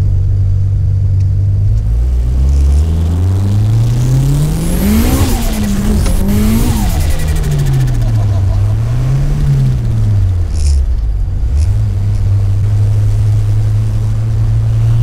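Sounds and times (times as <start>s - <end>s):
turbocharged car engine accelerating: 0.0s - 15.0s.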